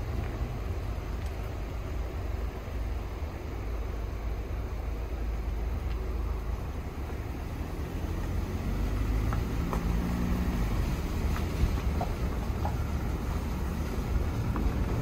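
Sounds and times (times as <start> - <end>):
flooded creek rushing: 0.0 - 15.0
light ticks: 0.1 - 0.4, 1.1 - 1.6, 5.8 - 6.1, 9.2 - 10.0, 10.8 - 15.0.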